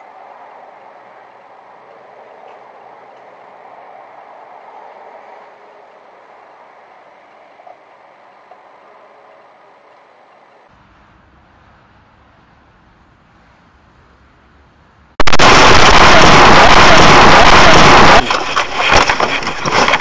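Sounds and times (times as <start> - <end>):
high electronic whine: 0.0 - 10.7, 15.2 - 20.0.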